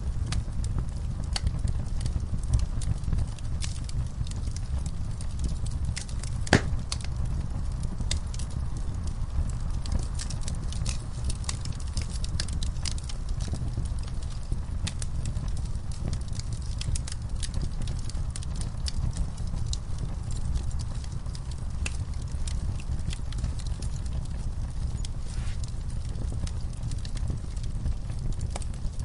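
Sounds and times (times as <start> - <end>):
low fire rumble: 0.0 - 29.0
wood fire crackling: 0.0 - 29.0
logs popping: 6.0 - 7.1.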